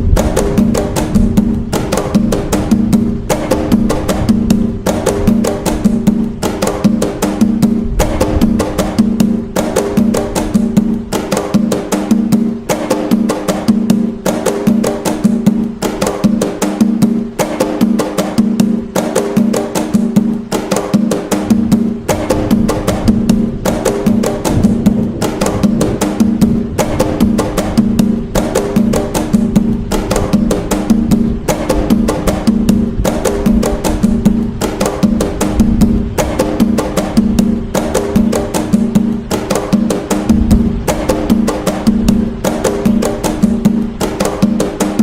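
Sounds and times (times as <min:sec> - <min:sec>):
ringing low drum tone: 0:00.0 - 0:06.4, 0:21.6 - 0:39.3, 0:40.1 - 0:42.4
hand drums playing fast rhythm: 0:00.0 - 0:45.0.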